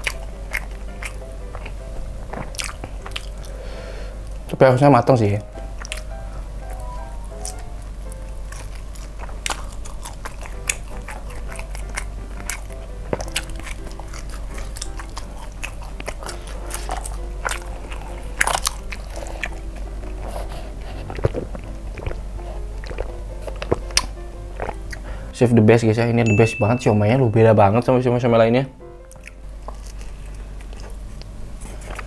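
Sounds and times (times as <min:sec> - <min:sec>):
person chewing with wet smacks: 0:00.0 - 0:03.6, 0:05.8 - 0:06.1, 0:06.8 - 0:25.1, 0:29.1 - 0:32.0
soft background music: 0:00.0 - 0:32.0.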